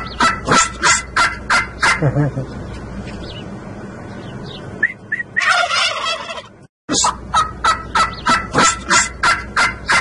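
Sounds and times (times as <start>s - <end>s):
turkeys gobbling: 0.0s - 2.4s, 4.8s - 10.0s.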